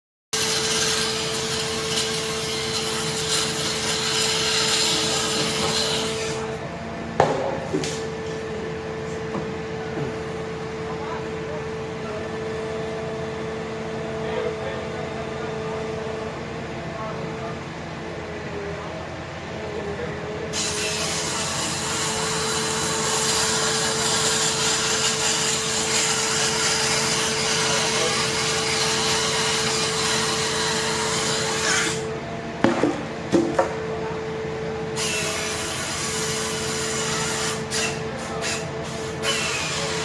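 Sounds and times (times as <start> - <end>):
loud hiss of saw into wood: 0.4 - 6.5, 20.5 - 32.1, 35.0 - 40.0
tree-removal machine whining: 0.4 - 40.0.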